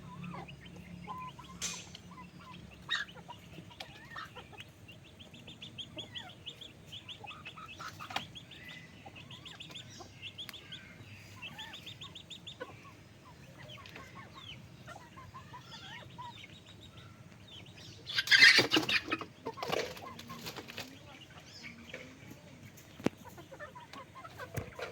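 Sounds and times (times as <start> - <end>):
chickens clucking: 0.0 - 24.9
wings flapping: 18.2 - 21.0.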